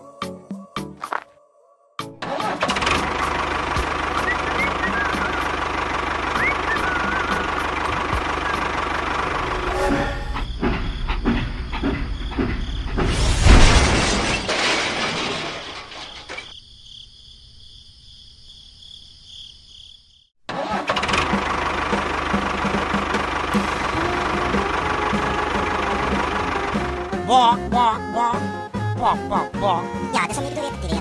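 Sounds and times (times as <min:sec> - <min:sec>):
engine running with knocking beat: 0:02.6 - 0:09.6, 0:10.4 - 0:13.1, 0:21.0 - 0:27.9.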